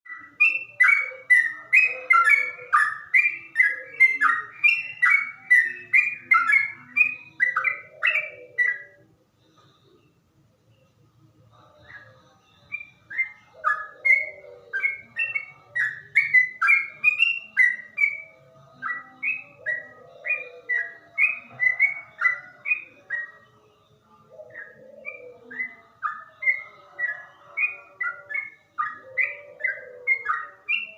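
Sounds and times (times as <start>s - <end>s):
bird singing whistled notes: 0.1s - 9.0s, 11.9s - 23.9s, 24.5s - 30.9s.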